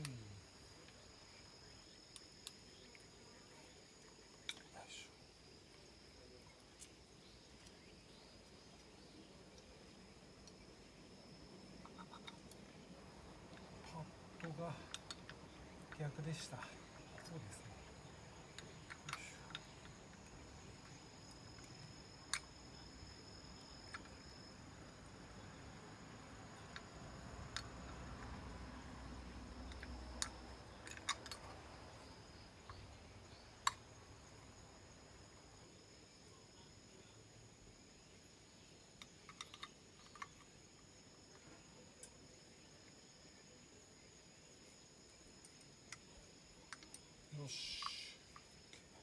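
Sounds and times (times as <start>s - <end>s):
faint high-pitched whine: 0.0s - 49.0s
parts clicking and tapping: 14.4s - 16.0s, 18.5s - 22.5s, 29.6s - 31.6s, 39.0s - 40.5s, 46.7s - 47.1s.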